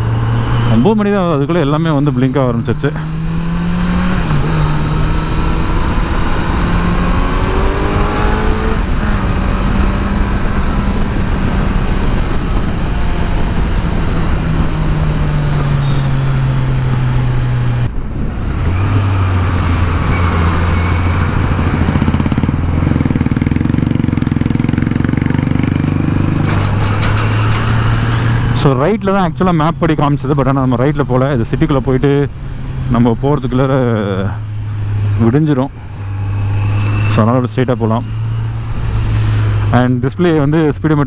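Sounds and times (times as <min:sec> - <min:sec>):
motorcycle engine droning: 0:00.0 - 0:41.0
wind and road noise: 0:00.0 - 0:41.0.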